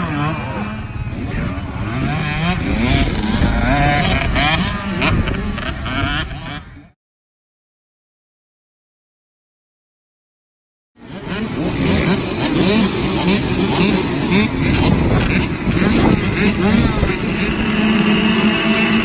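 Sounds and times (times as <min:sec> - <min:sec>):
motocross bike engines revving: 0:00.0 - 0:07.0, 0:11.0 - 0:19.0.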